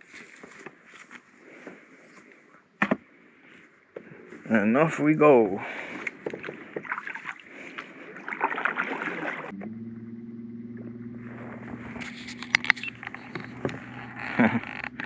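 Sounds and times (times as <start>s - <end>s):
water splashing: 5.5s - 10.0s
boat motor humming: 5.6s - 15.0s.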